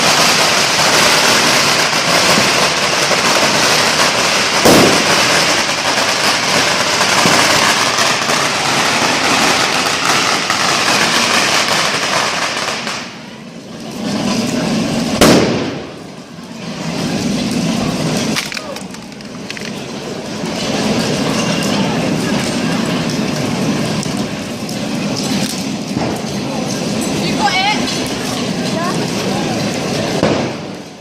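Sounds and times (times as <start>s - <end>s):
firework bang: 0.0s - 13.4s, 14.0s - 18.8s, 19.4s - 26.4s, 27.9s - 31.0s
fireworks crackling: 0.0s - 31.0s.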